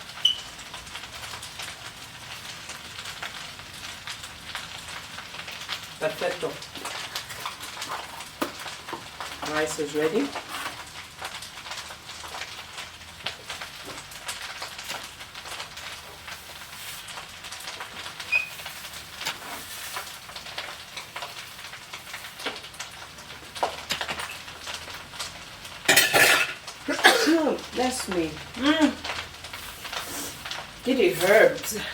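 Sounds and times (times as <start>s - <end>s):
rice sizzling in a pan: 0.0s - 31.9s
person sneezing: 26.3s - 27.5s.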